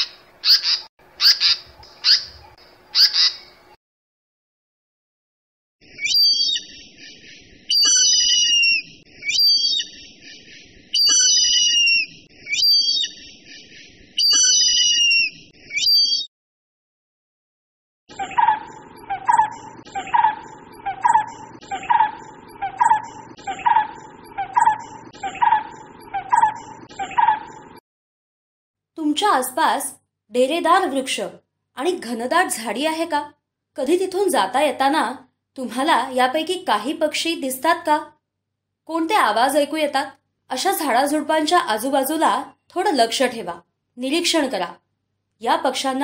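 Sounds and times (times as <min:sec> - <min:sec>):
high two-toned bird call: 0:07.7 - 0:10.0, 0:10.9 - 0:13.3, 0:14.2 - 0:16.3.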